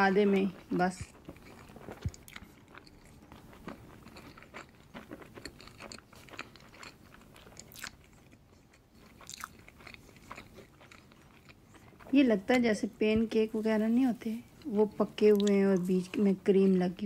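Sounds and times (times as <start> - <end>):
man chewing and smacking: 0.6 - 12.1.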